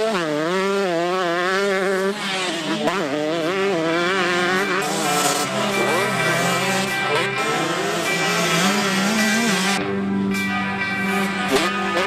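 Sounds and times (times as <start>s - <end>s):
motorcycle engines revving: 0.0s - 12.0s
background music: 4.2s - 12.0s.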